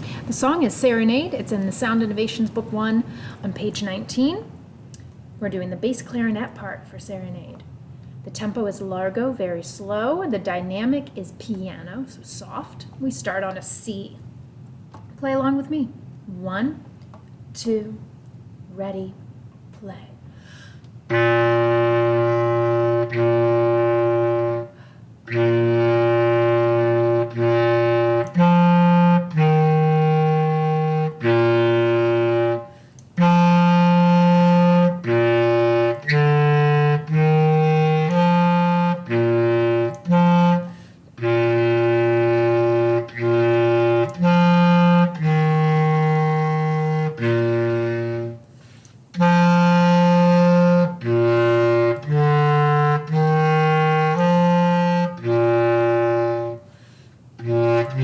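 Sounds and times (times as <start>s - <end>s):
bass clarinet slow melody: 21.1s - 48.5s, 49.1s - 56.7s, 57.4s - 58.0s.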